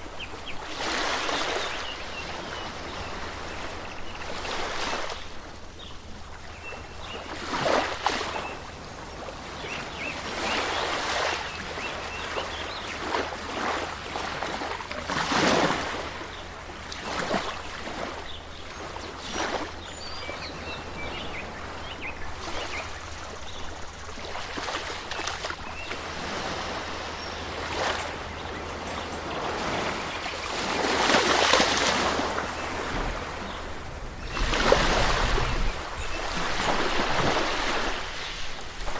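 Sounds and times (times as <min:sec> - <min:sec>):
water washing in surges: 0:24.1 - 0:38.9.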